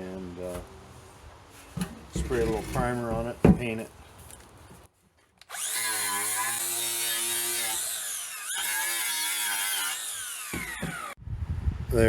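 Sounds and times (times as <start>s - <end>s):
drill wire brush scratching steel: 5.5s - 11.2s.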